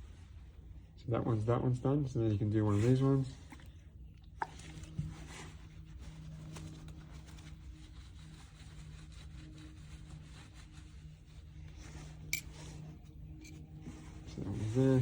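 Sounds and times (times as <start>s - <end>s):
low steady hum: 0.0s - 15.0s
cloth rubbing on brass: 5.1s - 15.0s.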